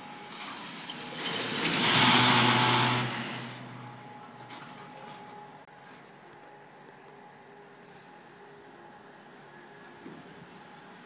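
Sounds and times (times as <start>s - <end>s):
freight train rolling past: 0.0s - 5.6s
metallic wheel squeal: 0.0s - 5.6s.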